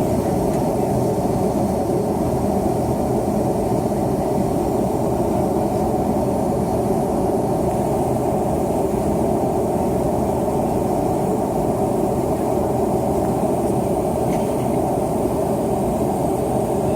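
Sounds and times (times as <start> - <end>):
airplane cabin engine rumble: 0.0 - 16.9.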